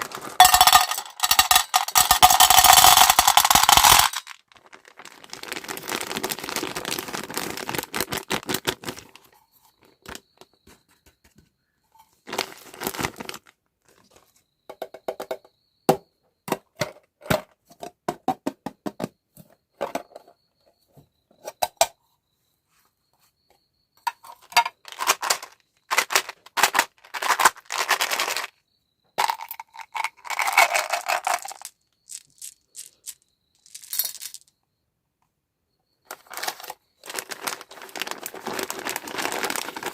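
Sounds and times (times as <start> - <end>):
plastic packaging crinkling and tearing: 4.3 - 9.2, 12.3 - 13.5, 36.2 - 39.9.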